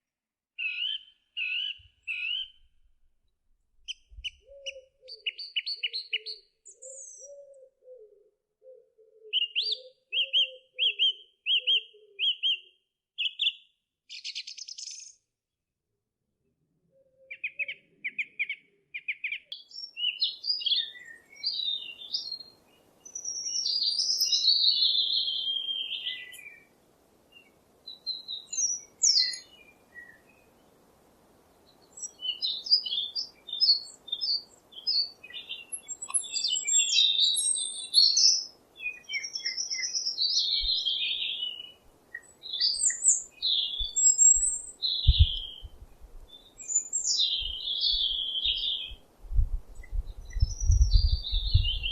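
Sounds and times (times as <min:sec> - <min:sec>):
songbirds singing: 0:00.6 - 0:02.7, 0:03.8 - 0:15.3, 0:16.8 - 0:30.9, 0:31.5 - 0:51.9
faint steady hiss: 0:19.5 - 0:51.0.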